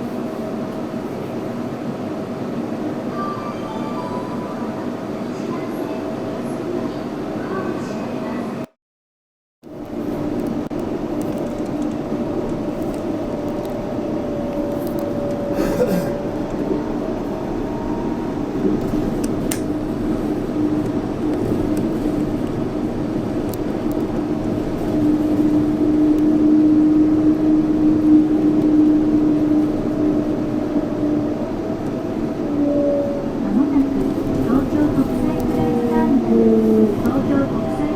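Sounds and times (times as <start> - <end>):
train tyre rumble: 9.7 - 37.9.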